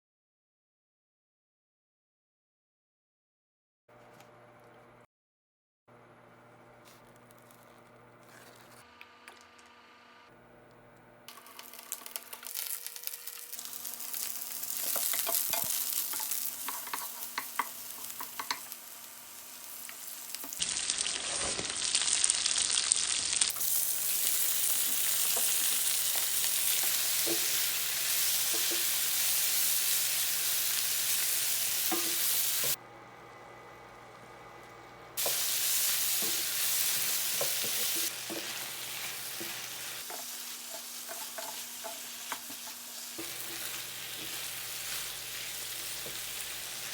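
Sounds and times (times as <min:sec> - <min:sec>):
food sizzling in a hot pan: 0:11.3 - 0:32.8, 0:35.2 - 0:46.9.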